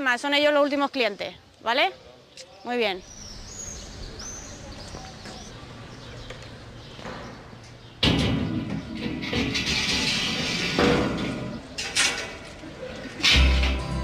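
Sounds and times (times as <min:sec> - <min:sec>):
high bird chirps: 0:02.4 - 0:08.0.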